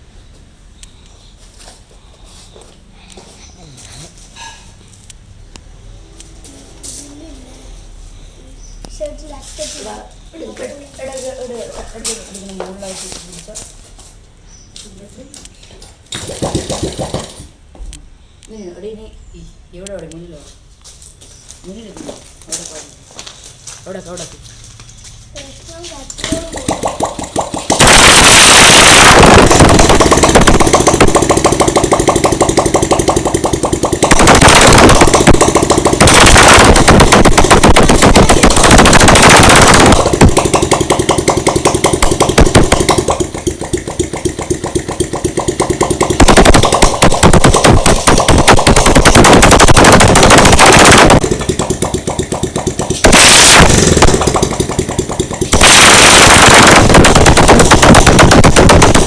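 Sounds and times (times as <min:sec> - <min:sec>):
motorcycle engine revving: 0:26.3 - 0:59.0.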